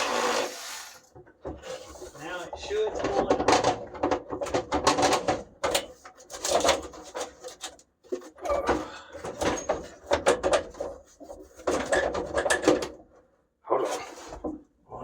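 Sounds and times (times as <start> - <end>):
plastic and metal parts knocking: 2.5 - 13.0.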